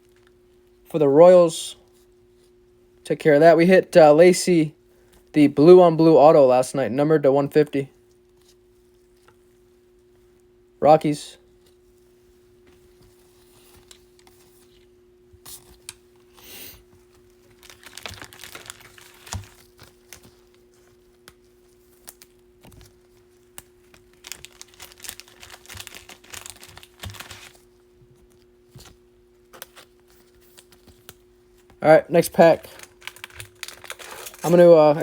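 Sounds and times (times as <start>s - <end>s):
faint steady hum: 0.0s - 35.0s
card wrappers crinkling: 15.5s - 35.0s.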